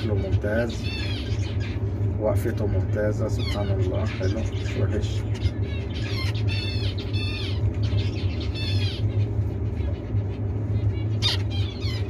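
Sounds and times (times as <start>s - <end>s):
finches calling: 0.0s - 12.0s
steady low hum: 0.0s - 12.0s.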